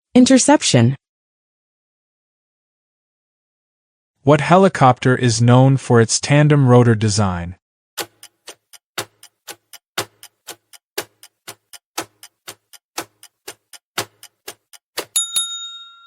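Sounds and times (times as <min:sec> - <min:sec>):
clock ticking: 0:08.0 - 0:15.2
bell-like ding: 0:15.1 - 0:16.0.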